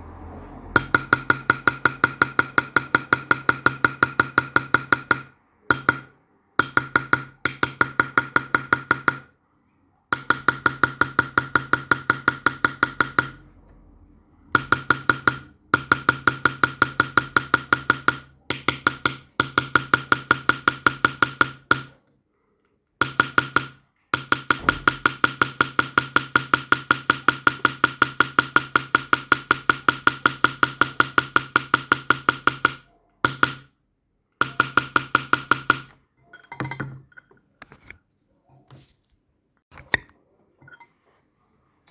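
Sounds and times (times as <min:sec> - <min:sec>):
hammer tapping chisel into silver: 0:00.8 - 0:09.3, 0:10.1 - 0:13.4, 0:14.6 - 0:22.0, 0:23.0 - 0:33.7, 0:34.4 - 0:37.4.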